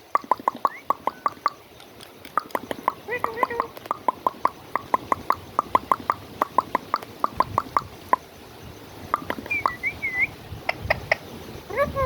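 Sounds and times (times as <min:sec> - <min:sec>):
rapid sharp clicks: 0:00.1 - 0:07.9, 0:09.2 - 0:09.8
short whistled chirp: 0:09.4 - 0:10.4.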